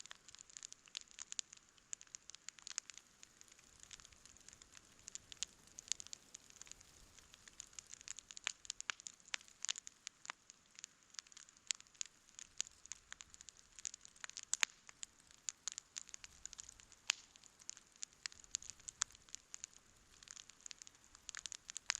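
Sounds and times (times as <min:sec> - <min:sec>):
campfire crackling and popping: 0:00.0 - 0:21.9
faint fire hiss: 0:00.0 - 0:21.9.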